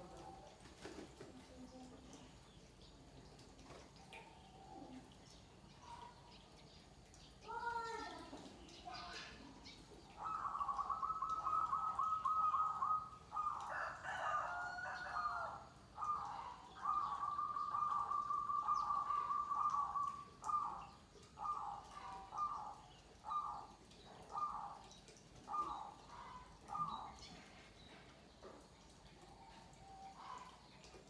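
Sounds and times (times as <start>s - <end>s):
doves cooing: 9.0s - 27.8s.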